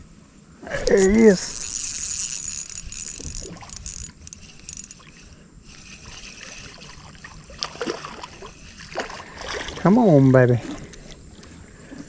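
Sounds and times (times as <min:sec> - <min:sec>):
fishing reel clicking: 0:00.8 - 0:07.0.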